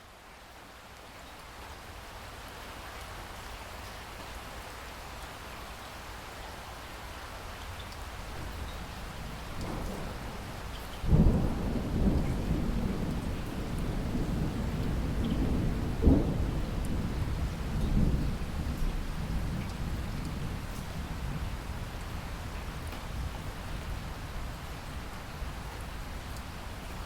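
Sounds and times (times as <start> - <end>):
heavy rain: 0.0 - 27.0
thunder rumbling: 9.3 - 20.7.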